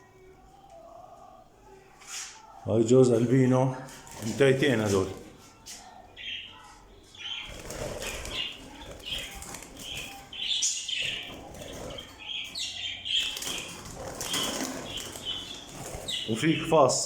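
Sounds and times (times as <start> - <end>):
canaries chirping: 2.3 - 17.0
canaries fluttering wings: 3.8 - 5.5, 7.2 - 17.0.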